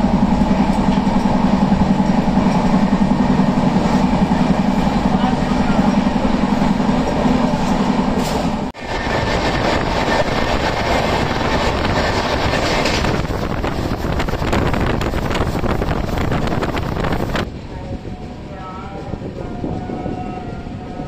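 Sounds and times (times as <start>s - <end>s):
train rumble and rail noise: 0.0s - 21.0s
rapid clatter of wheels: 8.9s - 17.5s.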